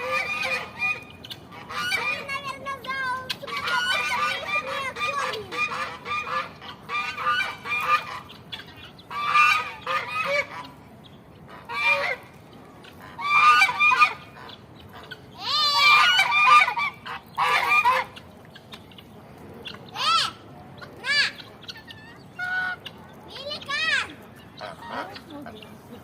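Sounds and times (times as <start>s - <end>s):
geese honking: 0.0s - 10.8s, 11.4s - 19.1s.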